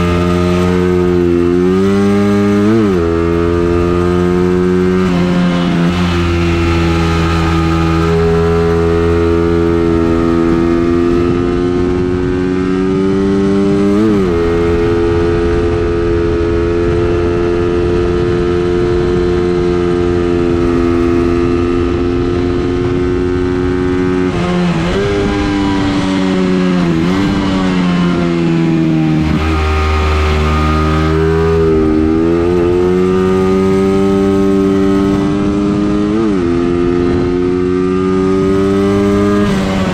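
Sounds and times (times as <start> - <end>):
racing engine at high revs: 0.0 - 39.9.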